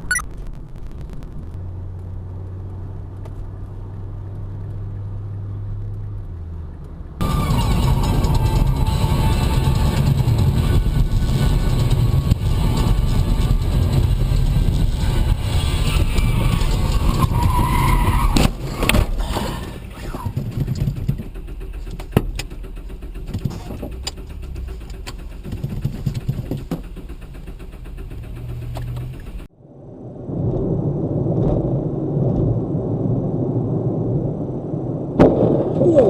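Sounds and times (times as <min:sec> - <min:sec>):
road and engine rumble: 0:00.0 - 0:36.0.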